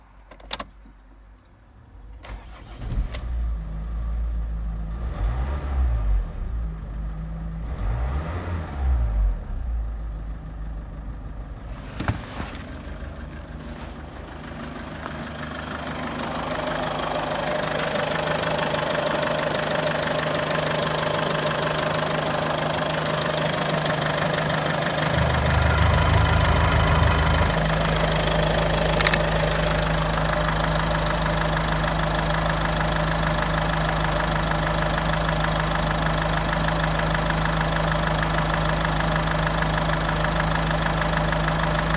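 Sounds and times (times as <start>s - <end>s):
diesel engine starting and idling: 1.8s - 41.9s
engine revving: 5.0s - 6.6s, 7.6s - 9.4s, 15.4s - 31.6s.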